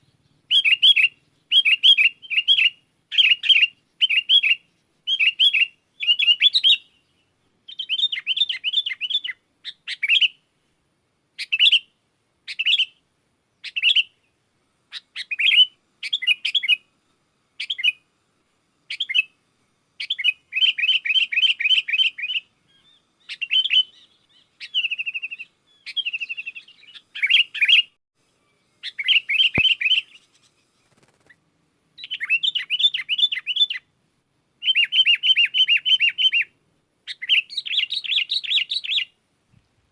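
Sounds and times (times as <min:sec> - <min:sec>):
bulbul singing chattering notes: 0:28.8 - 0:31.2.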